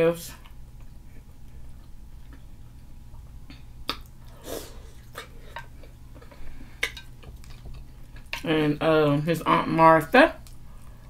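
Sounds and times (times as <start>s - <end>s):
low steady hum: 0.0s - 11.0s
close chewing: 0.4s - 8.4s
wet mouth clicks and smacks: 3.1s - 4.3s.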